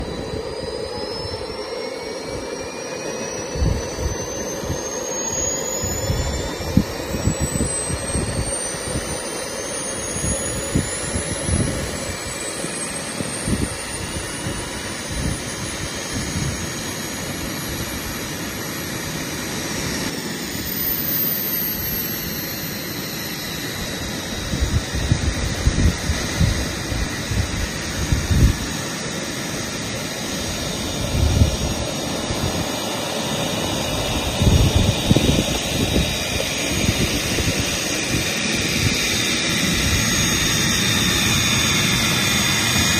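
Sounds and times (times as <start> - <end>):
steady rushing roar: 0.0 - 42.9
turbine engine whine: 0.0 - 42.9
gusty low rumble: 23.8 - 28.9, 29.6 - 42.9.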